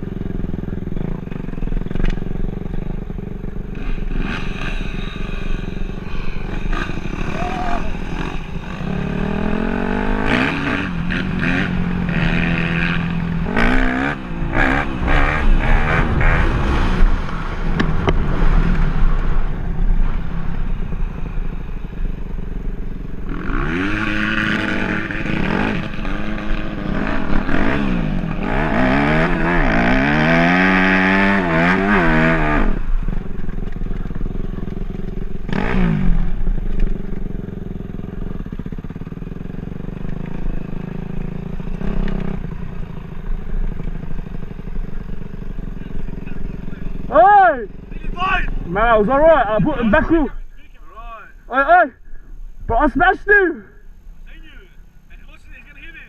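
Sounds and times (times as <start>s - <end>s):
dirt bike engine revving: 0.0s - 55.8s.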